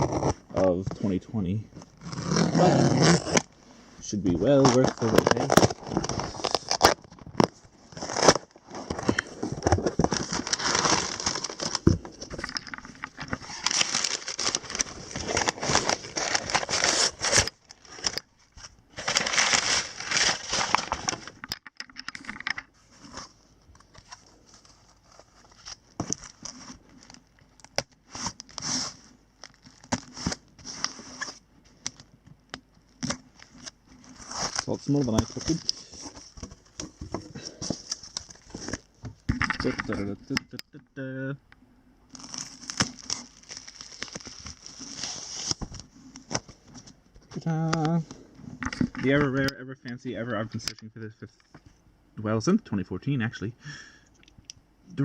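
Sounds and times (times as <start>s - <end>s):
packing material crinkling: 1.9s - 32.1s, 32.9s - 40.2s, 42.1s - 48.0s
tape and paper tearing: 2.0s - 3.5s, 4.5s - 9.2s, 9.8s - 11.8s, 13.3s - 18.2s, 27.8s - 29.0s, 33.0s - 36.2s, 42.1s - 45.6s.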